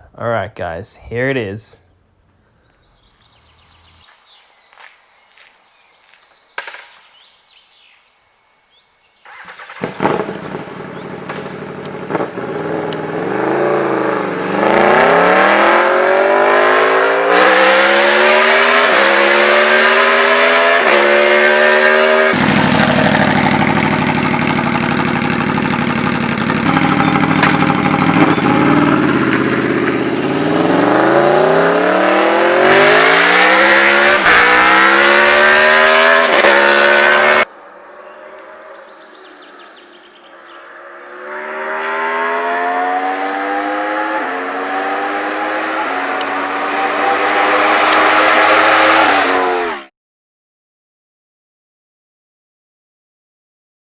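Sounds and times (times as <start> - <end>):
motorcycle engine accelerating: 9.2 - 39.6, 40.4 - 49.9.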